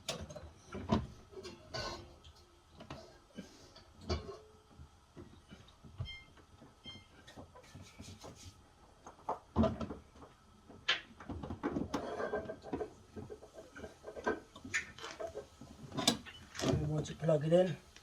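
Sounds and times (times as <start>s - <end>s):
refrigerator parts knocking and scraping: 0.0s - 2.2s, 9.1s - 17.1s.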